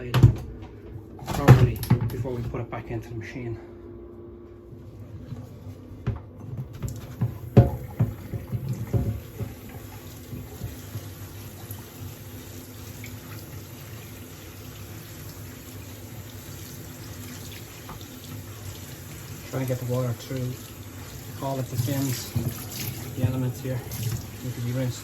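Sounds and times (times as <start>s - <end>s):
tap water running: 5.2s - 25.0s.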